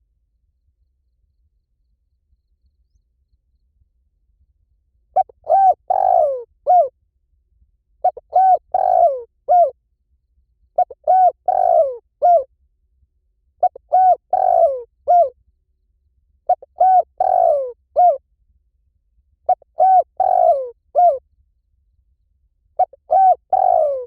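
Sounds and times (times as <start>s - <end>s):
dove cooing: 5.2s - 6.9s, 8.0s - 9.7s, 10.8s - 12.5s, 13.6s - 15.3s, 16.5s - 18.2s, 19.5s - 21.2s, 22.8s - 24.0s.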